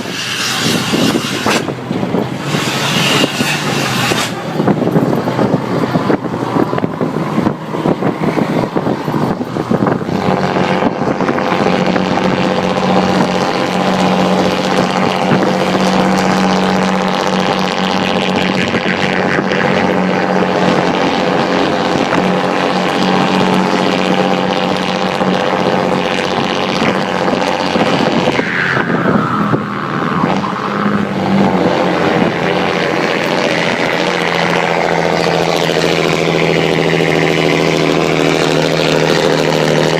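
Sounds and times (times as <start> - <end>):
diesel truck engine droning: 0.0 - 39.9.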